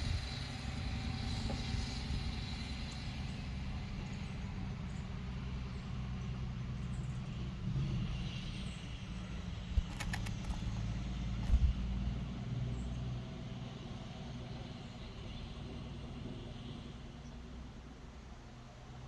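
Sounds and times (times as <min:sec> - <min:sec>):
engine low rumble: 0:00.0 - 0:19.0
sharp clicks: 0:09.6 - 0:11.9
dull thumps: 0:09.7 - 0:12.0.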